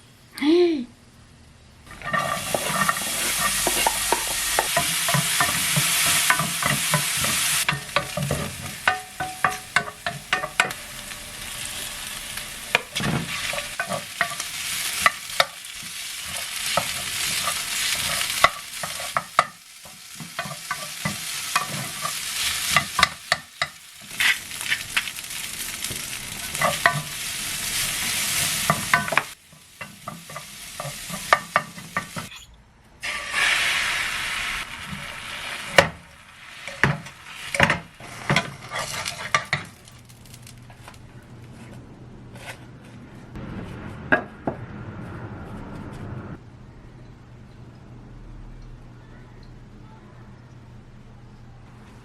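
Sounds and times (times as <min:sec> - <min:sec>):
food sizzling in a frying pan: 0:01.8 - 0:32.3, 0:33.0 - 0:41.0
utensil stirring and scraping: 0:01.9 - 0:10.8, 0:36.7 - 0:39.6.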